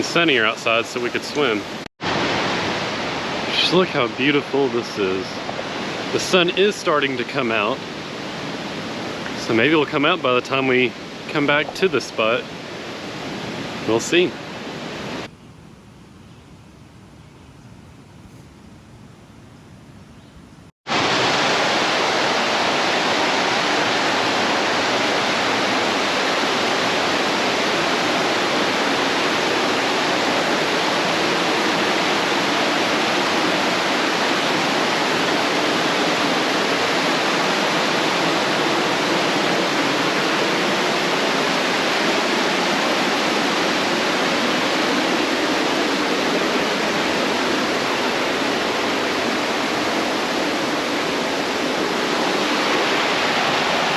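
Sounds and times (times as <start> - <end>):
water rushing over rocks: 20.9 - 27.6.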